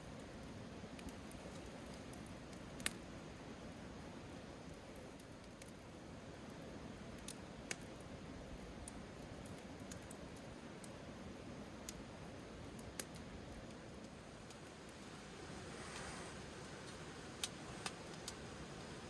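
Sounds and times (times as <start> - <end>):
mountain stream rushing: 14.7 - 19.0.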